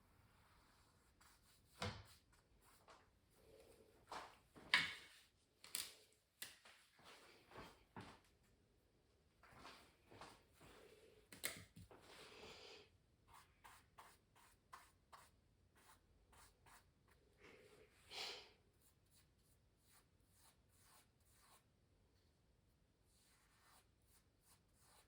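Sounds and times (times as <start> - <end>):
pencil scratching on canvas: 13.3 - 17.2, 18.8 - 21.7, 23.1 - 25.0.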